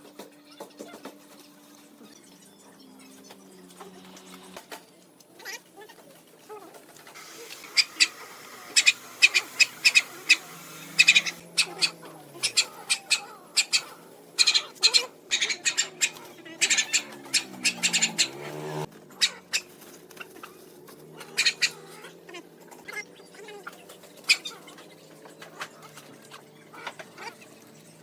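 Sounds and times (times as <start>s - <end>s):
birds squawking: 0.3s - 28.0s
low gliding bird call: 7.2s - 19.7s.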